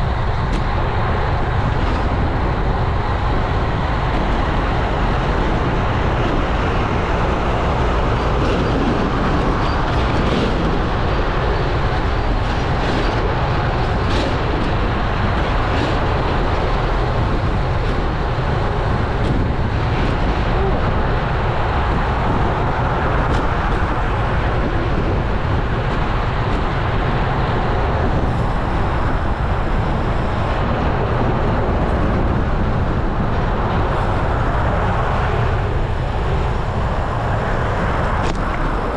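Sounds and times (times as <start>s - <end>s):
tyre and road noise: 0.0s - 38.9s
wind rush on microphone: 0.0s - 38.9s.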